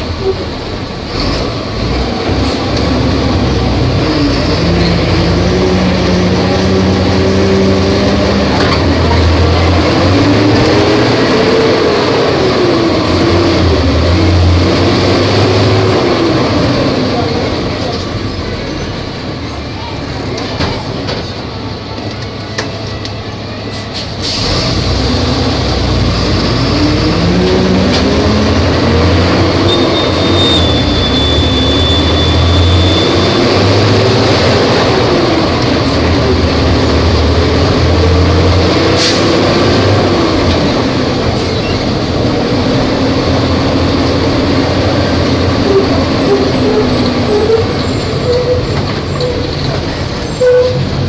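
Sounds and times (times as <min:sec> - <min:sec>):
bus diesel engine: 0:00.0 - 0:51.0.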